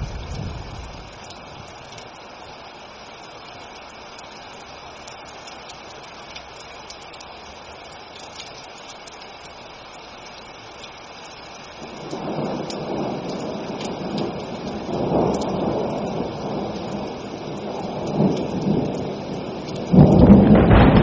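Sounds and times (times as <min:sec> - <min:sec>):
thunder rumbling: 0:00.0 - 0:01.9, 0:11.8 - 0:21.0
rain falling: 0:00.0 - 0:21.0
ticks of single raindrops: 0:00.0 - 0:21.0.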